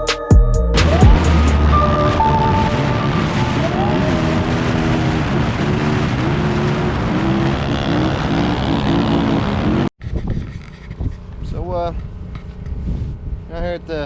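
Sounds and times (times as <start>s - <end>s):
off-road vehicle engine revving: 0.8s - 9.9s.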